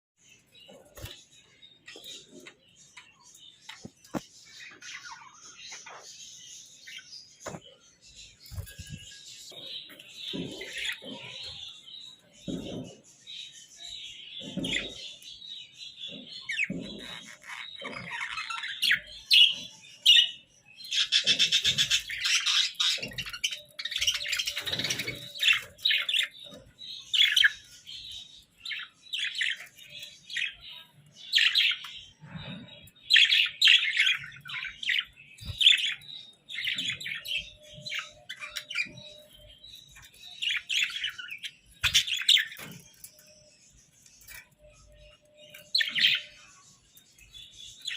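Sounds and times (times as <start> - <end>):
budgerigars chirping: 15.9 - 46.7.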